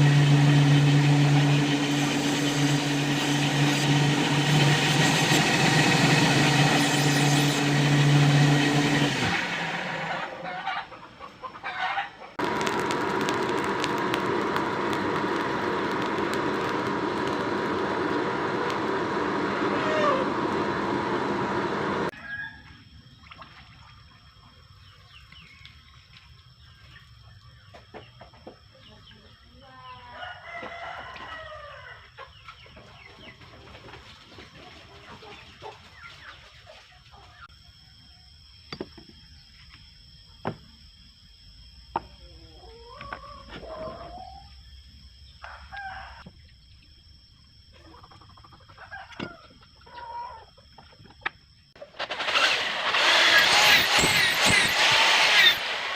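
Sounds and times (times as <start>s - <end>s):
rooster crowing: 9.9s - 12.4s, 19.6s - 20.4s, 22.1s - 22.8s, 30.0s - 32.1s, 45.4s - 46.3s.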